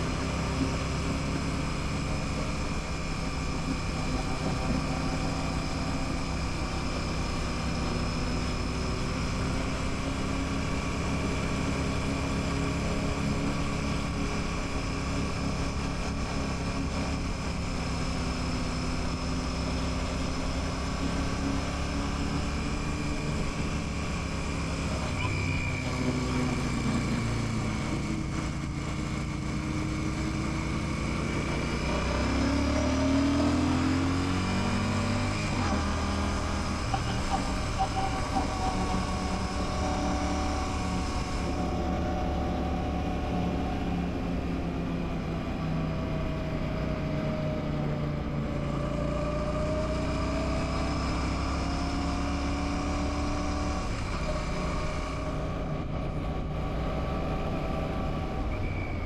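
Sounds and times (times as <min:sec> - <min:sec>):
motorcycle engine revving: 0:00.0 - 0:45.2.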